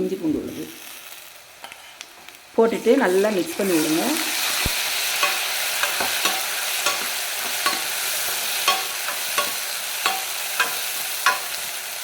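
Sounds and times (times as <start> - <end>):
onions sizzling in hot oil: 0.0 - 12.0
utensil clicking against pan: 5.2 - 11.7.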